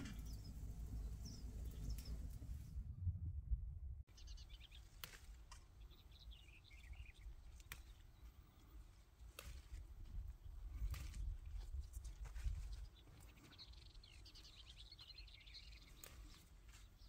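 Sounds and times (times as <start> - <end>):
faint birdsong: 0.0 - 2.8, 4.0 - 17.0
low steady rumble: 0.0 - 4.2.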